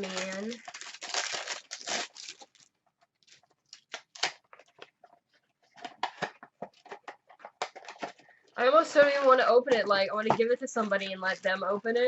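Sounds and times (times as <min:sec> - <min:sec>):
plastic wrapping tearing: 0:00.0 - 0:04.9.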